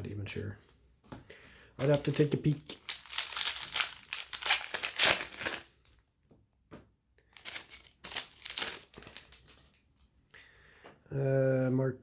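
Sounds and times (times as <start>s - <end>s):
plastic wrapper crinkling: 1.8s - 6.0s, 7.3s - 10.1s.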